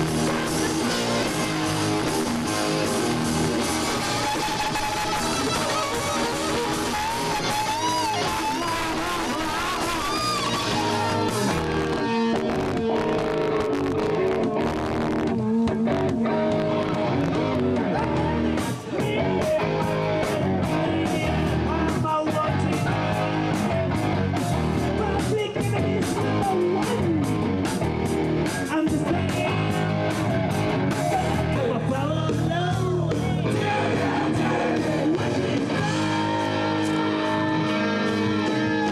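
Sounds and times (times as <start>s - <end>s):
bass guitar: 0.0s - 38.9s
electric guitar: 0.0s - 38.9s.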